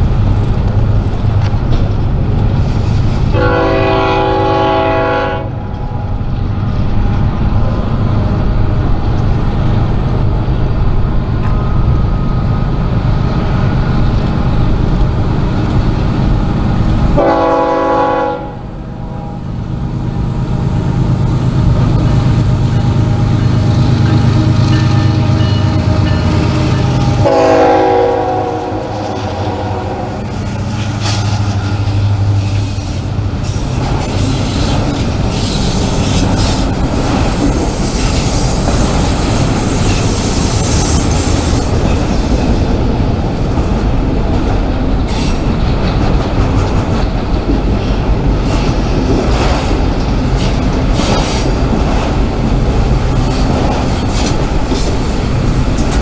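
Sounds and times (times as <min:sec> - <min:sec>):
freight train rumbling: 0:00.0 - 0:56.0
train horn: 0:03.3 - 0:05.8, 0:17.1 - 0:19.6, 0:22.0 - 0:30.4.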